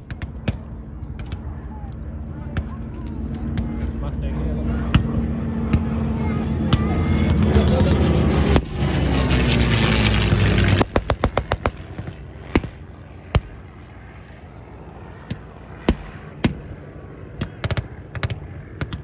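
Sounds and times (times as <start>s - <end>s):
propeller plane engine passing: 0.0s - 19.0s
blank gunfire: 10.7s - 11.8s.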